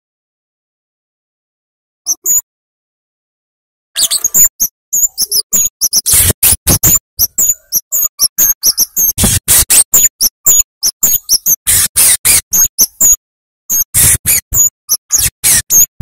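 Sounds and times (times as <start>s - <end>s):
bird calling in sharp chips: 4.0s - 16.0s.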